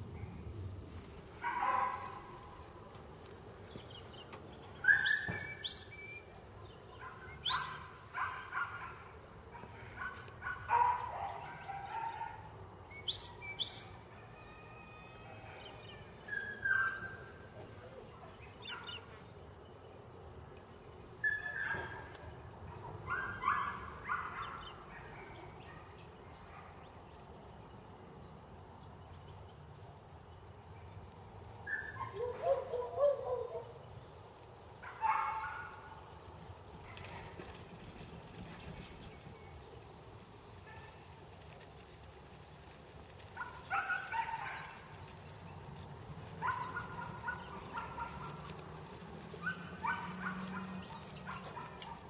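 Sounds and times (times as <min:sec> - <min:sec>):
birds chirping and calling: 0:03.6 - 0:20.0, 0:20.9 - 0:27.3, 0:31.2 - 0:36.2, 0:36.9 - 0:52.0.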